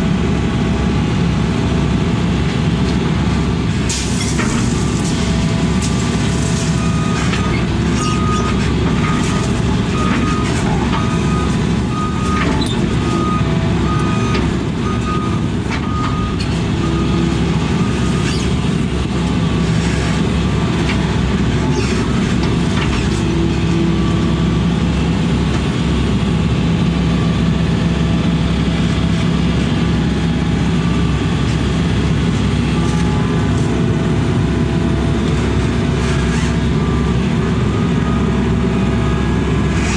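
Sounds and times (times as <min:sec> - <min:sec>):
heavy diesel machine running: 0:00.0 - 0:39.9
reversing alarm beeping: 0:06.7 - 0:18.4, 0:36.7 - 0:39.8.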